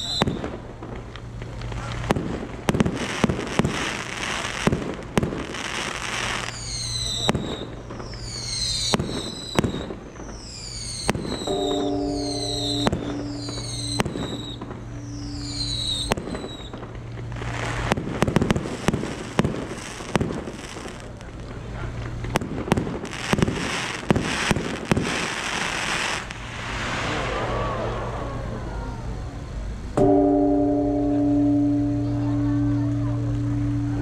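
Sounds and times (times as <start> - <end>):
whistling rockets: 0.0 - 0.7, 1.6 - 21.6, 22.3 - 29.6
firework crackling barrage: 0.0 - 30.3
firework bangs: 0.0 - 30.6
ringing tone: 11.4 - 16.1, 30.0 - 34.0.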